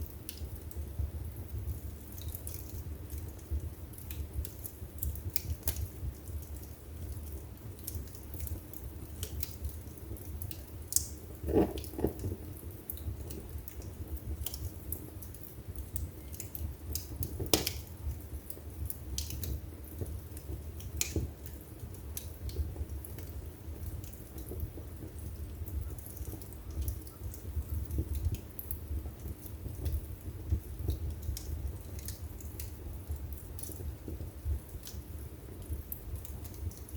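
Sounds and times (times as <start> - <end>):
low rumble of flames: 0.0 - 36.9
wood fire crackling: 0.0 - 36.9
loud pops of fire: 9.2 - 15.0, 15.6 - 25.3.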